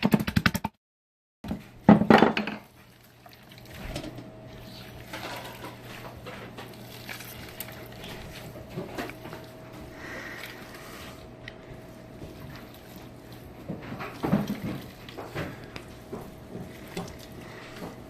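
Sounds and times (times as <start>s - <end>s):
steady hum: 2.7s - 18.0s
dishes scraping and clinking: 3.8s - 9.5s.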